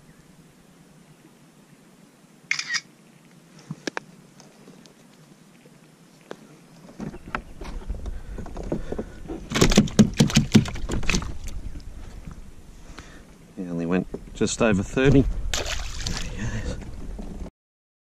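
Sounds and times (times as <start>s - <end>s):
knocking on a kayak: 9.5s - 11.3s.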